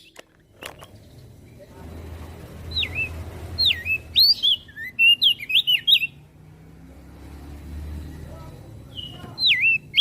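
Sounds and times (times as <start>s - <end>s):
bird singing whistled notes: 0.0s - 1.7s, 2.6s - 6.2s, 8.0s - 10.0s.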